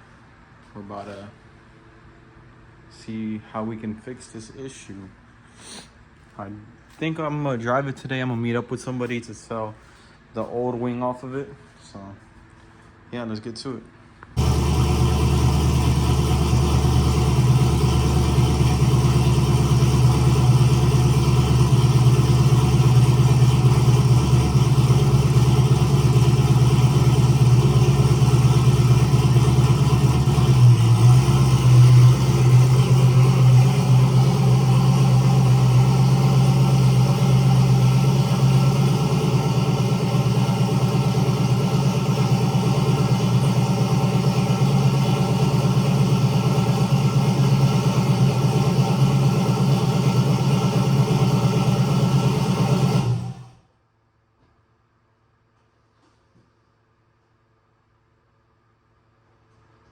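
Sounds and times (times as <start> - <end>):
car engine idling: 14.4 - 53.6.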